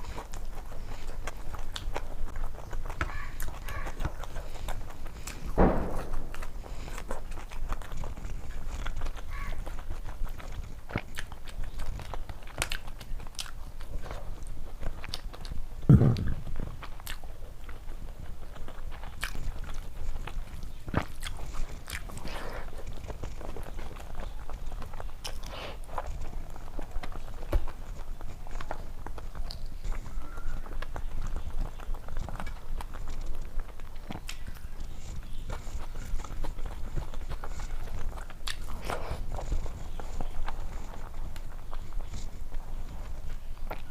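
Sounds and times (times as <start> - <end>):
wet mouth clicks: 0.0 - 14.1, 14.8 - 30.1, 30.7 - 43.9
chewing with small crunches: 0.0 - 43.9
deep thump: 5.6 - 6.6, 15.9 - 16.6.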